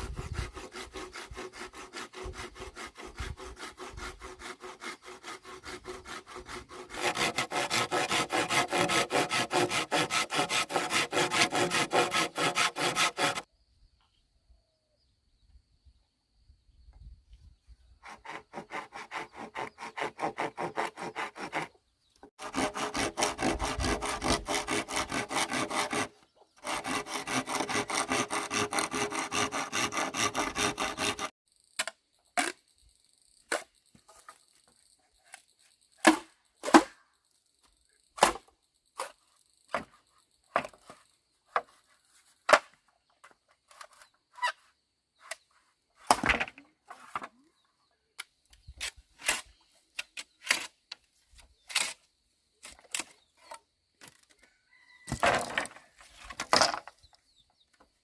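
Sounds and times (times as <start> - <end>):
hand saw cutting wood: 0.0 - 13.5, 18.0 - 31.4.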